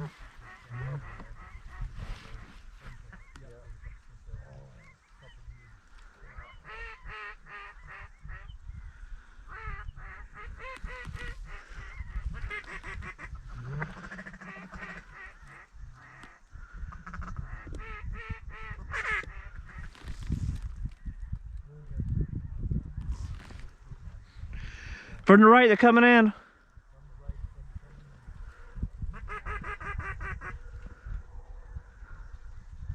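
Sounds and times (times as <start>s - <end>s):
ducks quacking: 0.0s - 8.6s, 9.4s - 20.1s, 29.0s - 30.7s
wind on microphone: 0.0s - 25.3s, 26.6s - 32.9s.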